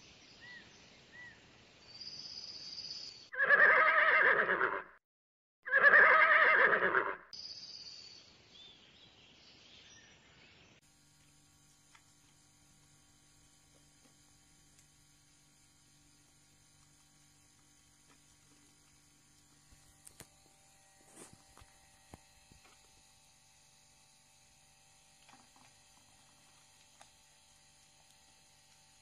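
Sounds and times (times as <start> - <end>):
faint electrical hum: 8.1 - 29.0.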